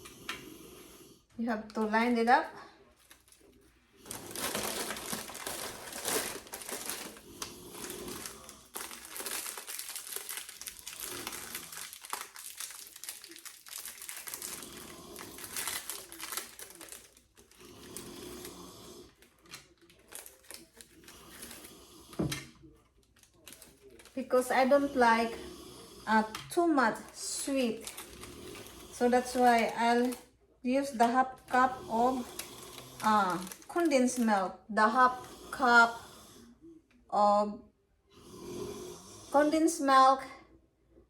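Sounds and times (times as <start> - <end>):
crackers rustling and clattering: 2.8 - 34.4
plastic wrapper crinkling: 2.9 - 25.2, 26.3 - 30.3, 31.3 - 34.4.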